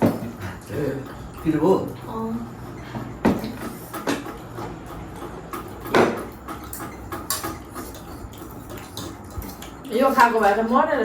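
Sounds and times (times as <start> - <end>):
cutlery tapping on a dish: 2.7 - 9.8.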